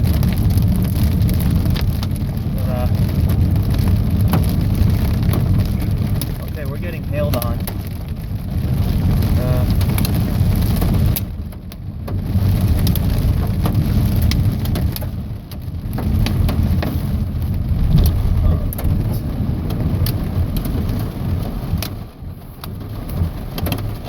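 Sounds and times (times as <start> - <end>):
hail pelting a vehicle: 0.0 - 24.0
heavy low rumble: 16.6 - 23.0.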